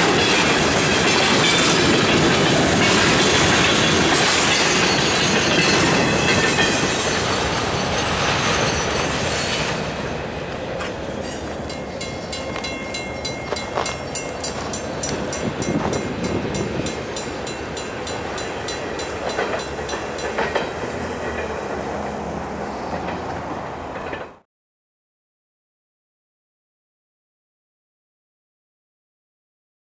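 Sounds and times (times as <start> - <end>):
train wheels clicking over joints: 0.0 - 22.1
train rushing noise: 0.0 - 24.5.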